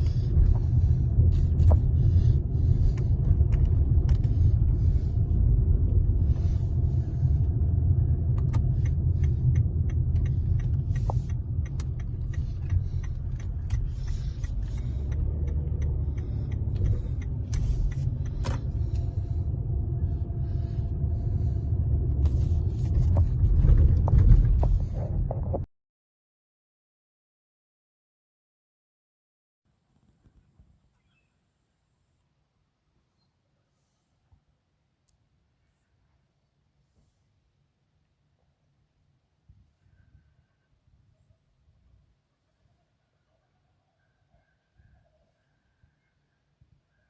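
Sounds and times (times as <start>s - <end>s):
steady low rumble: 0.0s - 25.7s
faint clicks and ticks: 8.3s - 19.2s.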